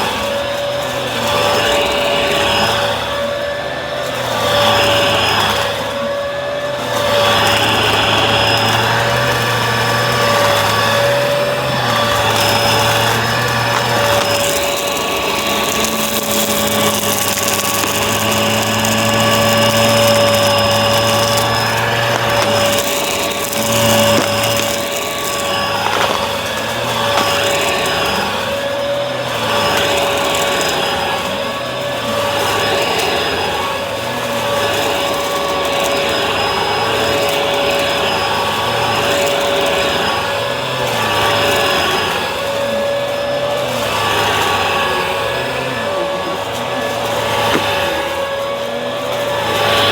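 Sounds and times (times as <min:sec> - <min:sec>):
vacuum cleaner whining: 0:00.0 - 0:49.9.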